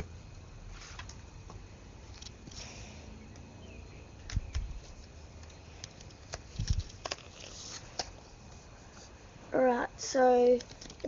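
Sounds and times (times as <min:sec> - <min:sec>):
cards clicking: 0:04.2 - 0:08.2
card packet crinkling: 0:05.8 - 0:08.2.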